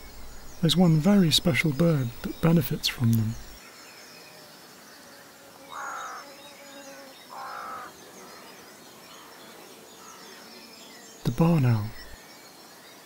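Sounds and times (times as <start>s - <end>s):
faint high birdsong: 0.0s - 13.0s
short bird calls: 5.7s - 8.5s.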